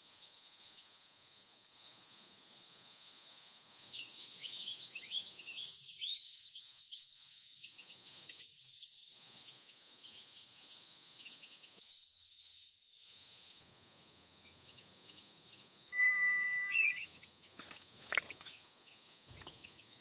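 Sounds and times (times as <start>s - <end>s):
insects chirring: 0.0s - 20.0s
short rising whistled call: 15.9s - 17.1s.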